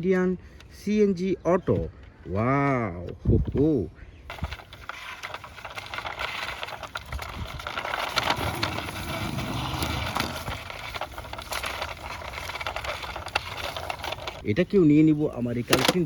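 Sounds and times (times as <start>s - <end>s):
leaves and branches rustling: 4.3s - 16.0s.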